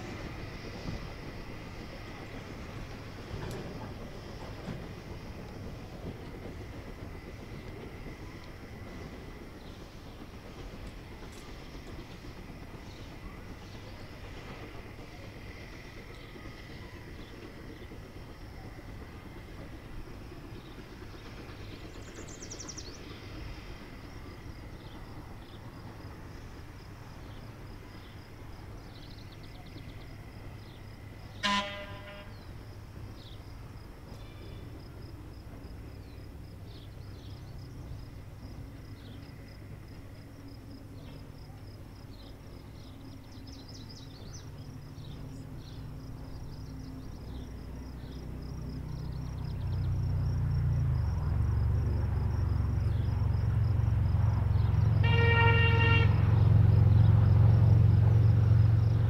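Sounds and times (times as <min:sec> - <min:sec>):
insects chirping: 0:00.0 - 0:59.0
steam locomotive whistle toot: 0:31.3 - 0:32.6, 0:54.9 - 0:56.6.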